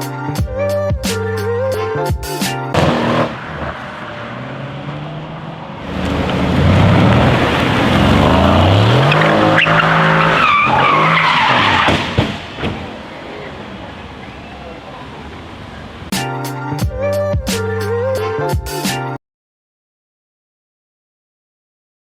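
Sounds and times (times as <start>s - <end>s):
car engine revving: 2.7s - 16.1s
tyres squealing: 7.9s - 16.0s.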